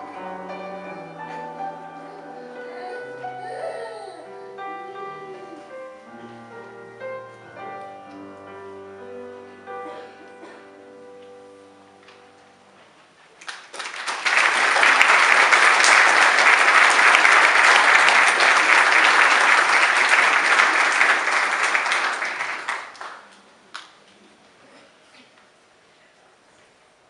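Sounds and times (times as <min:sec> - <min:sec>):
piano chord: 0:00.0 - 0:12.8
audience applause: 0:13.4 - 0:23.9.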